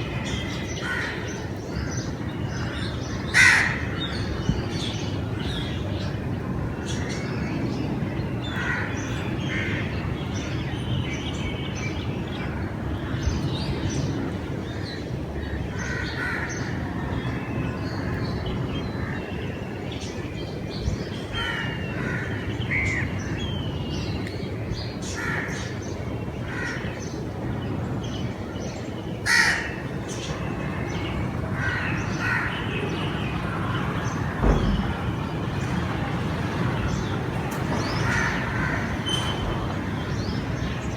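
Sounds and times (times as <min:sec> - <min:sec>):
crows cawing: 0:02.6 - 0:04.4, 0:26.5 - 0:26.8, 0:29.2 - 0:30.0, 0:30.6 - 0:34.4, 0:37.8 - 0:40.2.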